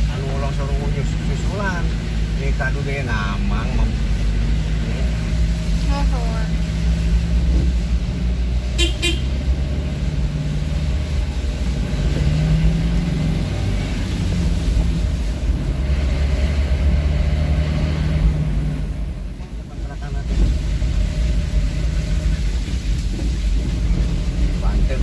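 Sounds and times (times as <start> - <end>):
vehicle engine running: 0.0 - 25.0
short horn beeps: 8.8 - 9.3.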